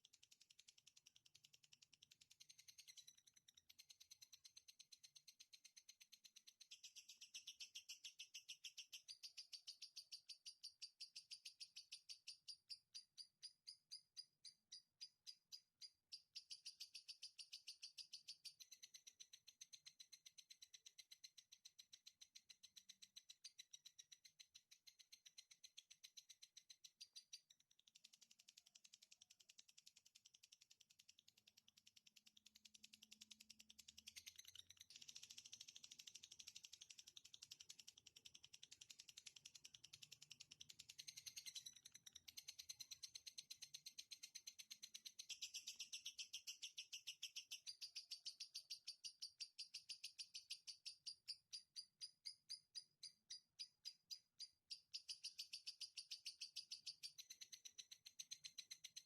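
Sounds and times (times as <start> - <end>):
songbird chattering trill: 44.9 - 59.0.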